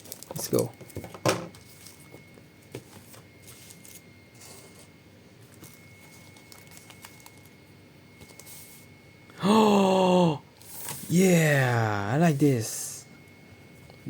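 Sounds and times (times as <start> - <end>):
packaging rustling: 5.5 - 7.6.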